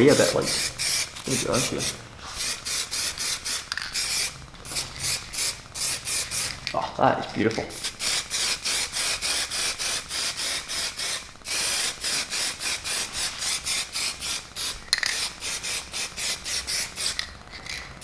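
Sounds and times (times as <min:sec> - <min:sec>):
aerosol spray bursts: 0:00.1 - 0:06.6, 0:07.7 - 0:17.2.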